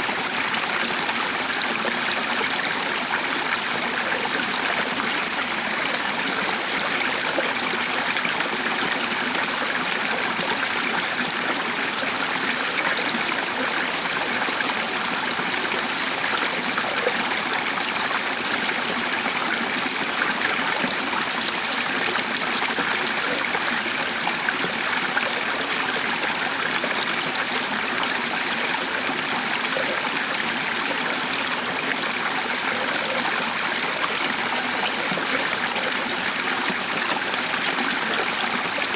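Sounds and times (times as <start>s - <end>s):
stream of running water: 0.0s - 38.9s.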